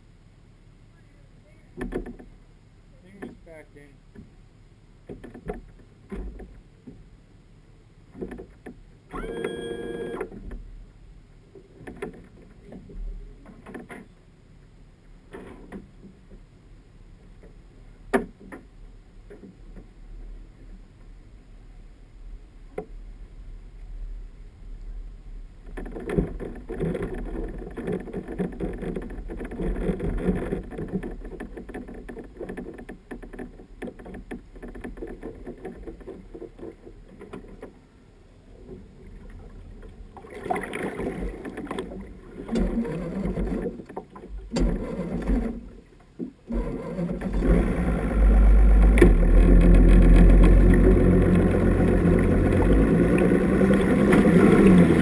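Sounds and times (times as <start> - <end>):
outboard motor running: 1.0 - 10.6, 38.6 - 55.0
rushing water: 38.9 - 55.0.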